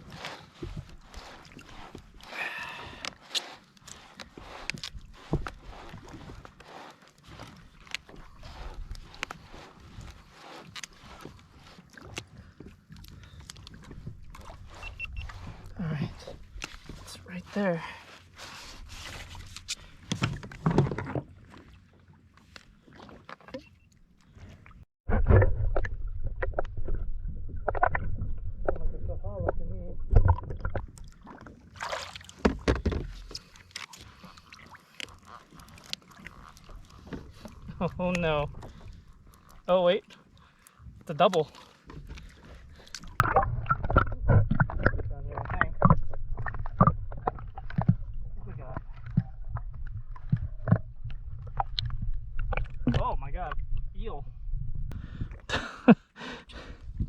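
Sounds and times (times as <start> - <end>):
water splashing around kayak: 0.0 - 57.0
steady low rumble: 43.1 - 55.5.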